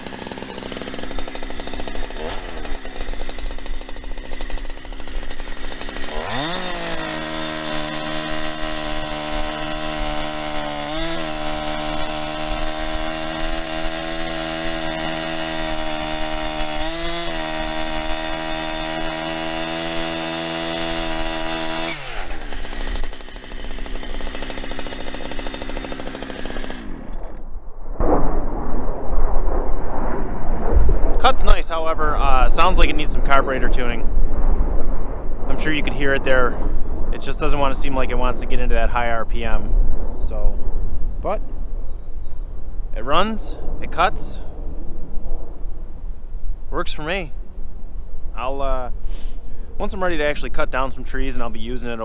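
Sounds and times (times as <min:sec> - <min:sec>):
chainsaw revving: 0:00.0 - 0:27.4.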